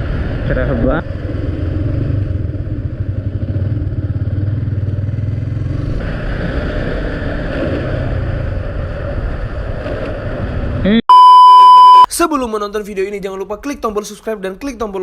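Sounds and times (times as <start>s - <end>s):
wind and tyre rushing: 0.0s - 10.9s.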